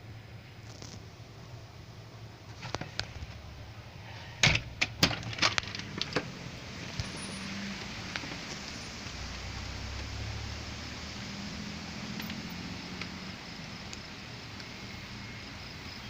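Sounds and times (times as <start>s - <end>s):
steady hiss: 0.0s - 16.0s
sharp clicks and knocks: 4.4s - 6.3s.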